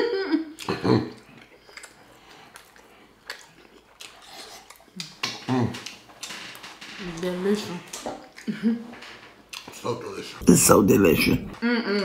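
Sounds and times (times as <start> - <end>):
chewing and mouth sounds: 0.6 - 6.6, 9.4 - 9.8.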